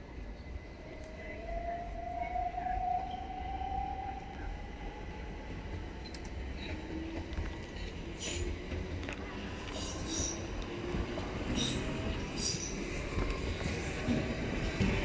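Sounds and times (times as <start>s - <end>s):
train whining tone: 0.0s - 9.1s
train running gear rumbling: 0.0s - 15.0s.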